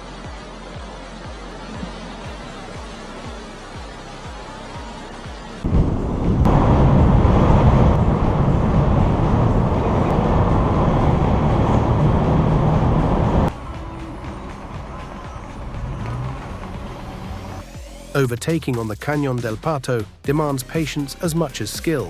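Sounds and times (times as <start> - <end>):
heavy vehicle rumble: 5.6 - 18.0.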